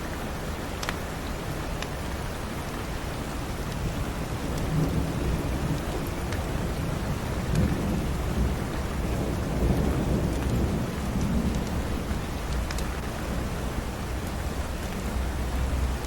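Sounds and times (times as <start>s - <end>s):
rain hissing: 0.0s - 16.0s
fireplace fire crackling: 0.8s - 16.0s
thunder rumbling: 3.8s - 15.9s.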